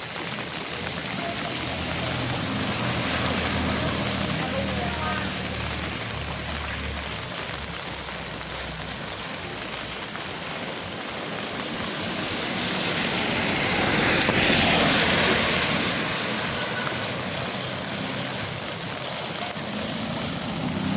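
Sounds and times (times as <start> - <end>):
heavy rain falling: 0.0 - 20.9
tyres hissing on wet road: 0.0 - 20.9.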